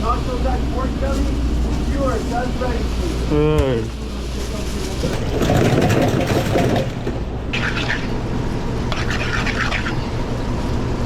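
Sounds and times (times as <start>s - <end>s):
low kitchen hum: 0.0s - 11.0s
rumbling clatter: 4.4s - 7.7s.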